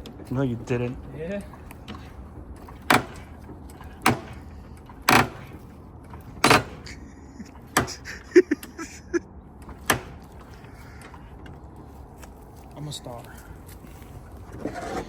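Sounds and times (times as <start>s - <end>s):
light knocks: 1.7s - 4.4s
loud thumps on car body: 2.8s - 3.3s, 4.0s - 4.4s, 5.1s - 5.5s, 6.4s - 6.8s.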